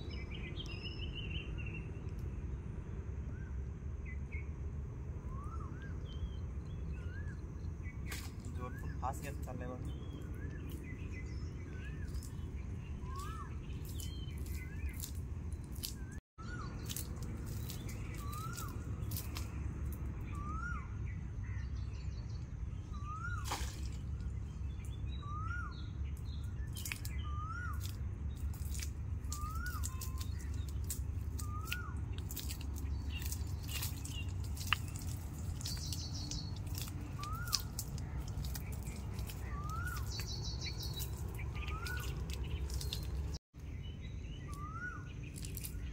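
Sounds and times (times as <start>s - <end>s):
steady low rumble: 0.0s - 45.9s
bird rising and falling call: 11.7s - 15.0s, 22.9s - 24.0s, 35.6s - 43.1s.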